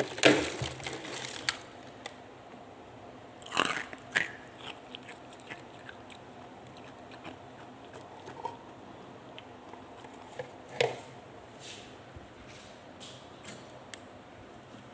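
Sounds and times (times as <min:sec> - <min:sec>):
ice being chewed: 0:03.4 - 0:10.7.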